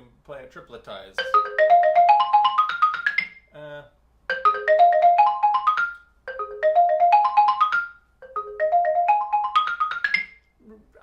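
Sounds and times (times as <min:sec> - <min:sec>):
xylophone arpeggio runs: 0:01.2 - 0:03.5, 0:04.3 - 0:10.4.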